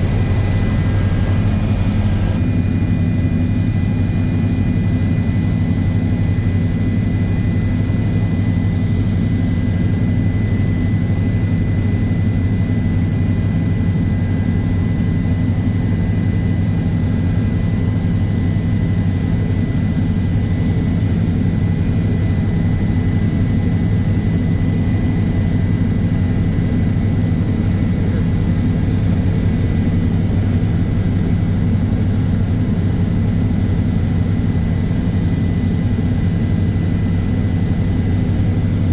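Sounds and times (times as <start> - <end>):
aircraft engines droning: 0.0 - 38.9
faint high whine: 0.0 - 38.9.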